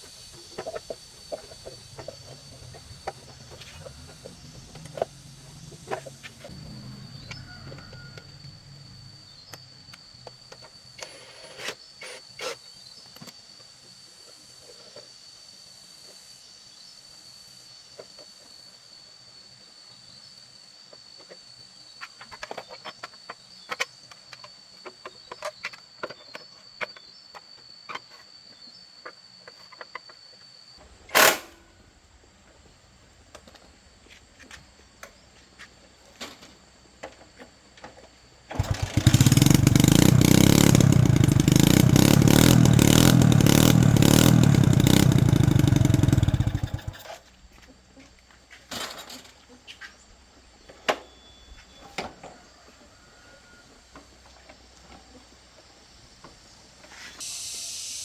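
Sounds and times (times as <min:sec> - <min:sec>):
motorcycle engine running: 0:00.1 - 0:09.4, 0:38.5 - 0:47.1.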